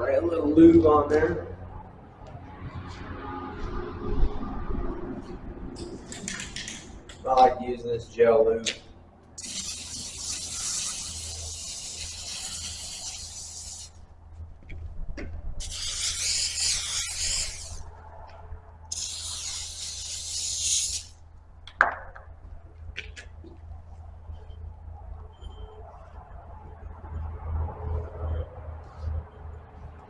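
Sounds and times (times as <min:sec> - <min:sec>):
aerosol can spraying: 0:09.4 - 0:14.0, 0:15.6 - 0:17.8, 0:18.9 - 0:21.2.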